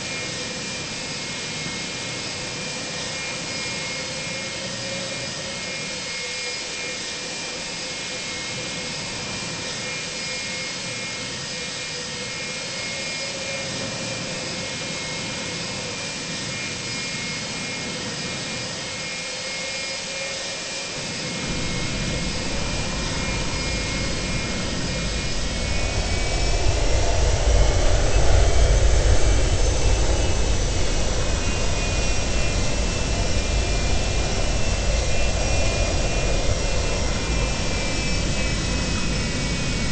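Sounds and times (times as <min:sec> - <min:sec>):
jet engines whining in cabin: 0:00.0 - 0:39.9
deep rumble: 0:21.3 - 0:39.9.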